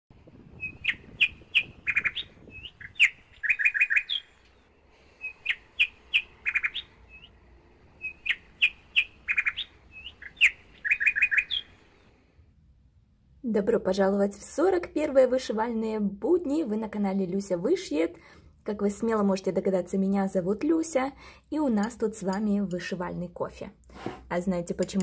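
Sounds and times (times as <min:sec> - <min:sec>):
bird chirping: 0:00.5 - 0:12.1.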